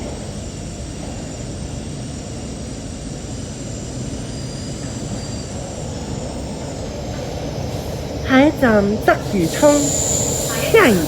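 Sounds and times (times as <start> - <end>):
train wheels rumbling: 0.0 - 11.0
faint high-pitched tones: 9.3 - 11.0.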